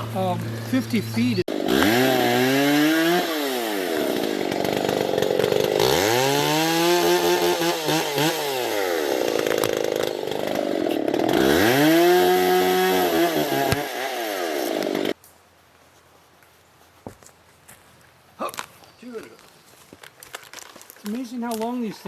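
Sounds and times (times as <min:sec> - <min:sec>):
battery chainsaw motor speeding up: 0:00.0 - 0:15.2.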